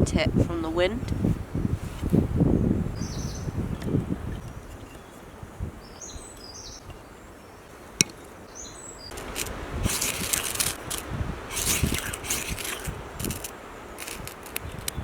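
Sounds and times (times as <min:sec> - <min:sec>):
small birds chirping: 0:02.4 - 0:15.0
dry leaves and twigs rustling: 0:09.1 - 0:15.0.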